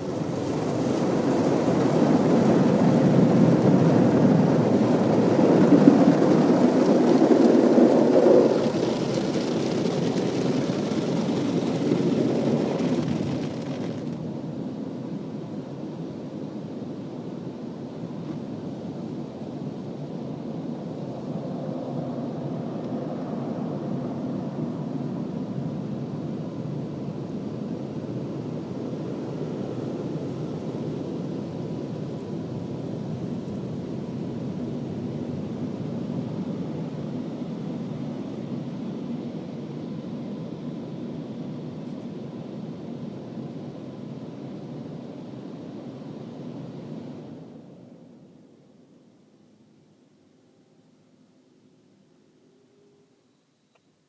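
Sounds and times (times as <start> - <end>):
car wash machinery rushing: 0.0 - 14.1.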